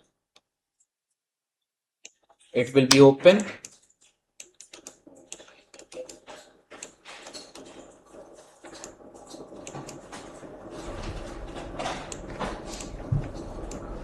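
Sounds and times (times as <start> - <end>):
keyboard and mouse clicks: 2.0 - 10.1, 12.1 - 13.9.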